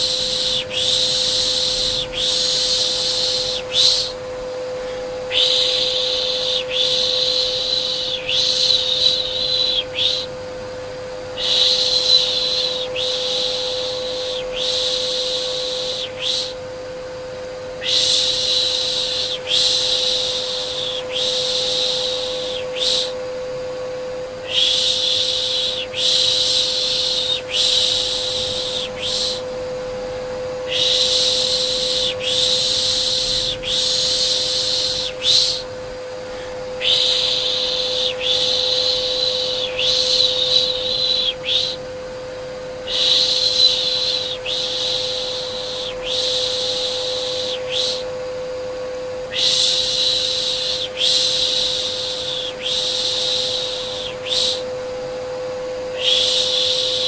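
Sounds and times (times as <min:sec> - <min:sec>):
vacuum cleaner hum: 0:00.0 - 0:57.0
person shushing: 0:04.8 - 0:10.3, 0:24.4 - 0:29.6, 0:30.6 - 0:41.8.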